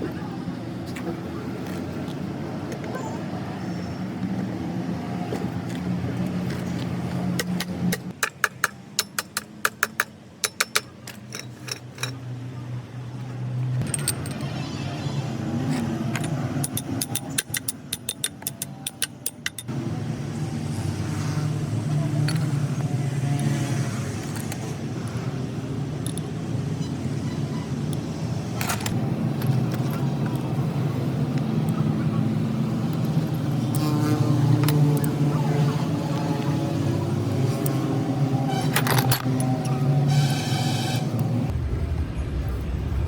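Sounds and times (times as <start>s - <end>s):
vehicle engine hum: 0.0s - 43.0s
hand tools clicking on metal: 7.4s - 12.2s, 16.1s - 19.7s.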